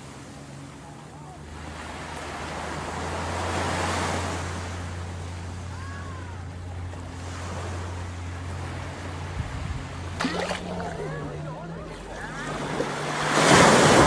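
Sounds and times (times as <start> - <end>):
sea waves washing in: 1.6 - 14.0
steady low hum: 4.4 - 14.0.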